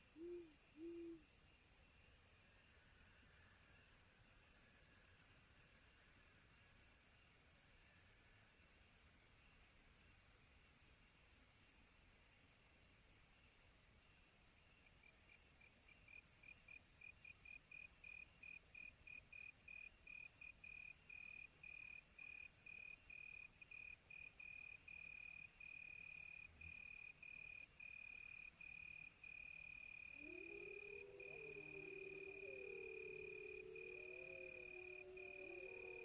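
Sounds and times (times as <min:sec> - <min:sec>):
cricket chirping: 0:00.0 - 0:36.0
wolves howling: 0:30.2 - 0:36.0.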